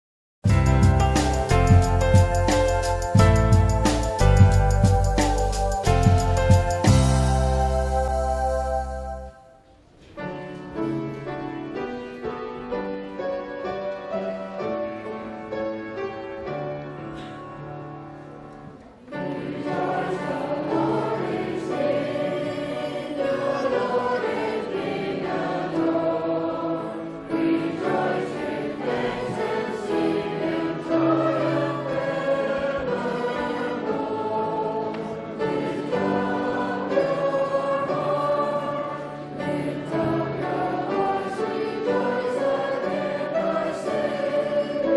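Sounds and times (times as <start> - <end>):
instrumental accompaniment: 0.5 - 11.0
voices singing a hymn: 19.0 - 44.9.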